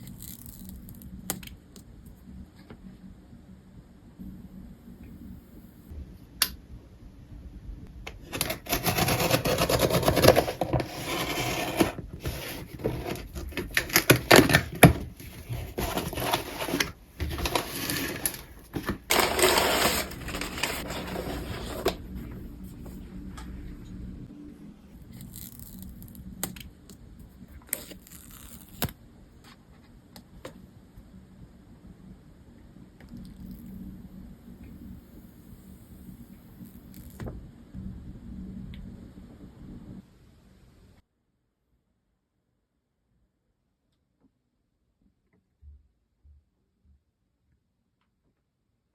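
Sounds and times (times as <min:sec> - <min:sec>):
paper and cardboard rustling: 0:08.2 - 0:22.1.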